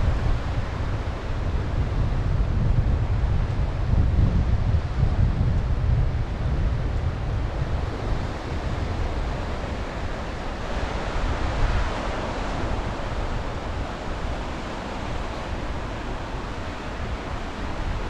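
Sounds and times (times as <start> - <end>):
wind buffeting microphone: 0.0 - 18.0
sea waves washing onto shore: 6.6 - 18.0.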